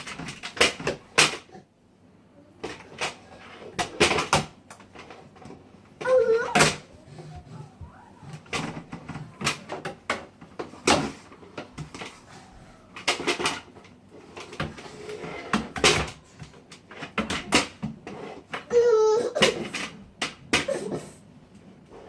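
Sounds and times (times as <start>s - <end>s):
vacuum cleaner knocking and clunking: 2.6s - 18.7s.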